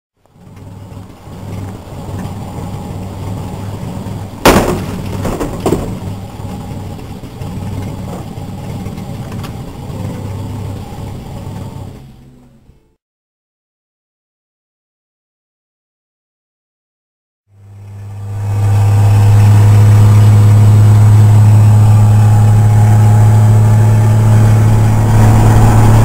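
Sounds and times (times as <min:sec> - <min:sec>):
car engine idling: 0:00.2 - 0:13.0, 0:17.6 - 0:26.0
loud sharp bang: 0:04.4 - 0:06.0.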